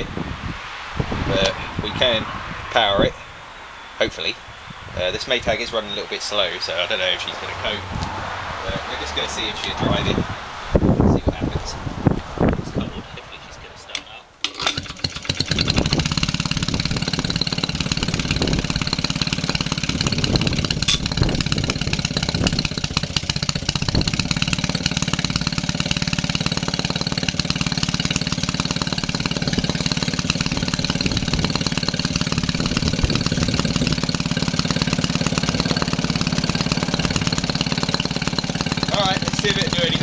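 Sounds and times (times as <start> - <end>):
two-stroke engine running: 14.4 - 40.0.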